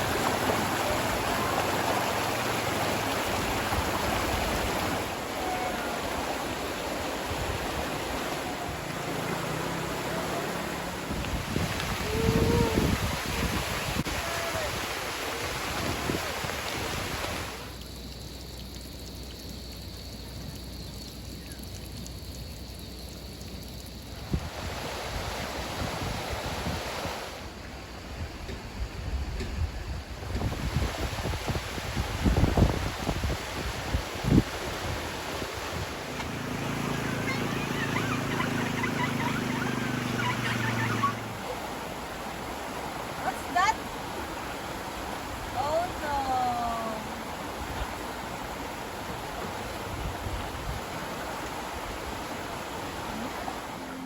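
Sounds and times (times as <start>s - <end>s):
water rushing: 0.0s - 54.0s
engine running: 6.1s - 11.5s, 35.9s - 43.1s
wind on microphone: 11.0s - 17.6s, 24.2s - 27.4s, 28.1s - 36.1s
birds chirping: 36.2s - 41.8s.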